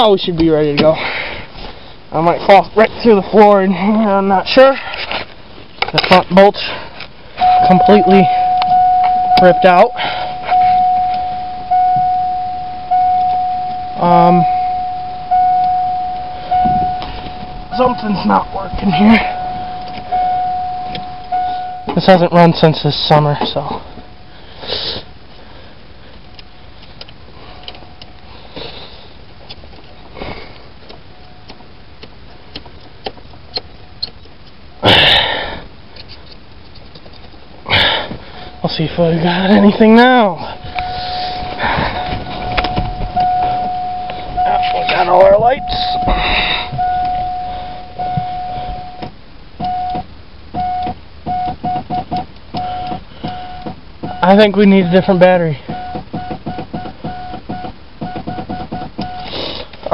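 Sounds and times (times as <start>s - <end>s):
dashboard warning buzzer: 7.4s - 22.2s, 38.5s - 50.0s
clicks: 13.0s - 22.0s
person sniffing: 24.5s - 25.1s, 59.2s - 59.8s.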